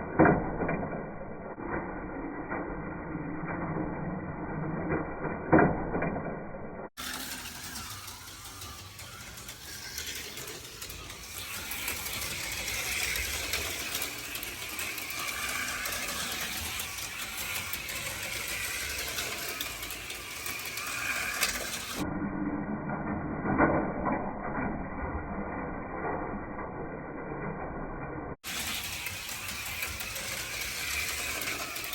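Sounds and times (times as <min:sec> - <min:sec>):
slot cars rattling on track: 0:07.0 - 0:22.0, 0:28.4 - 0:31.9
small electric motors whining: 0:07.0 - 0:22.1, 0:28.4 - 0:31.9.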